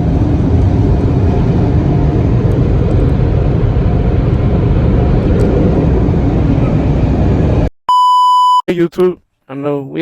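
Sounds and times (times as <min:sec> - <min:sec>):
car wash machinery rumbling: 0:00.0 - 0:07.7.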